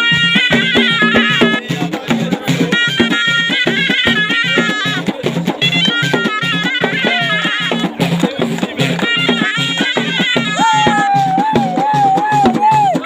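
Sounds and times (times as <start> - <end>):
shawm playing folk melody: 0.0 - 13.0
steady drum beat: 0.0 - 13.0.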